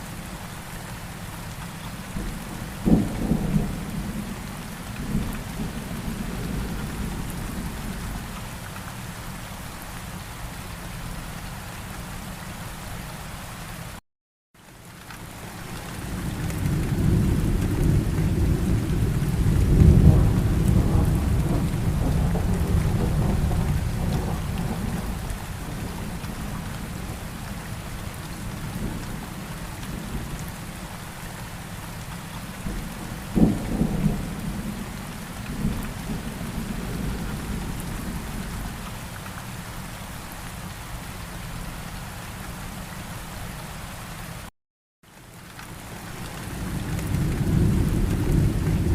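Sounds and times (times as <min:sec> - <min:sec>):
steady rain: 0:00.0 - 0:14.0, 0:14.6 - 0:48.9
thunder rolling: 0:16.6 - 0:27.2, 0:46.6 - 0:48.9
sharp thunderclap: 0:17.0 - 0:25.2.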